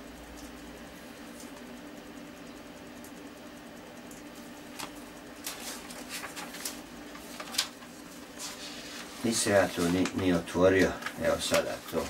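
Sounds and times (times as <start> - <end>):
steady low hum: 0.0 - 12.0
book being handled and opened: 4.8 - 12.0.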